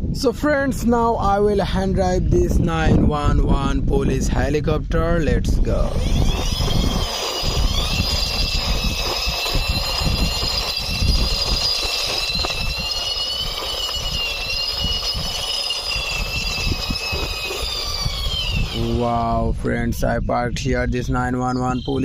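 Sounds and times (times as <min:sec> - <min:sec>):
toy wheels rolling on ground: 0:05.8 - 0:19.0
toy helicopter whine: 0:05.8 - 0:19.3.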